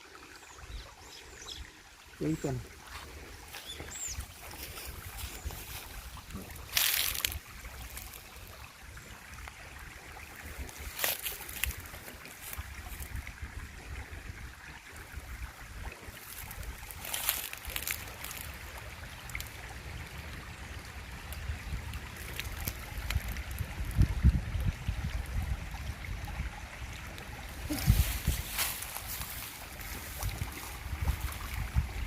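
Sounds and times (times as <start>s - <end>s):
wind buffeting microphone: 3.5s - 7.9s, 21.4s - 26.6s, 27.5s - 32.0s.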